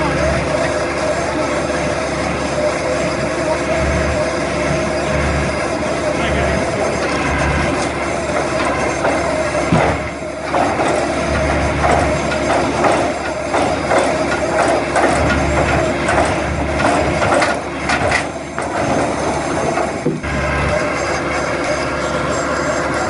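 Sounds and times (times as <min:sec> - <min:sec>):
machine humming: 0:00.0 - 0:23.0
clatter of knocks: 0:08.3 - 0:20.2.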